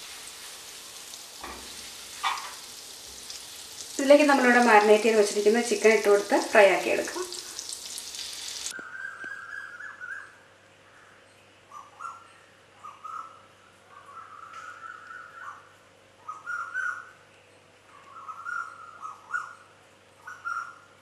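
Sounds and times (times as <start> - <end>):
butter sizzling in a pan: 0.0 - 8.8
faint bird calls: 8.8 - 17.2, 17.9 - 21.0.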